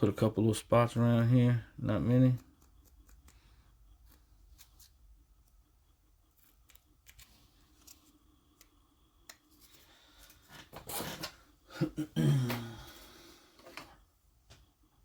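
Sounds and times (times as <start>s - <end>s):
light clicks of small parts: 2.3s - 5.6s.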